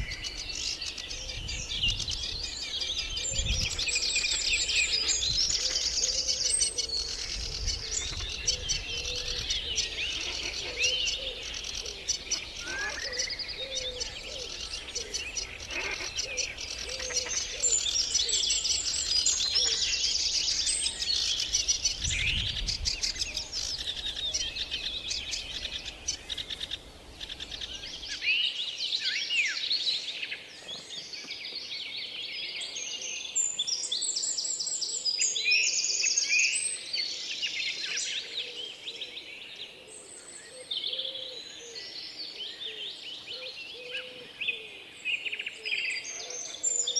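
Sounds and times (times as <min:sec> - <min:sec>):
songbirds chirping and singing: 0:00.0 - 0:46.9.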